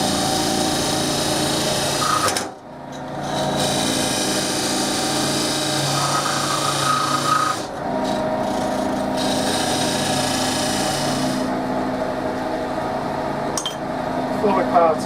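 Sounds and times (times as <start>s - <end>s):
tool scraping spinning wood: 0.0s - 11.6s
lathe humming: 0.0s - 15.0s.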